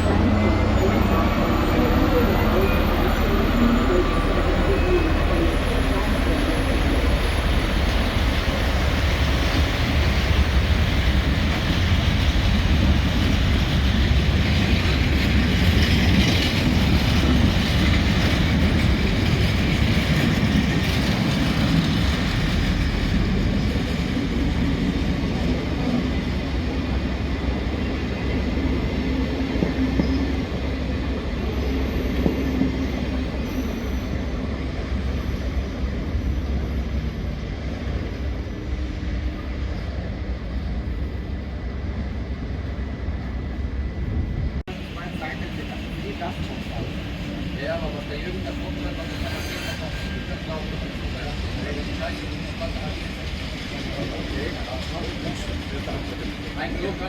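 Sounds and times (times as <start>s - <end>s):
train wheels rumbling on rails: 0.0s - 57.0s
wheel squeal: 31.5s - 34.4s, 48.9s - 50.7s.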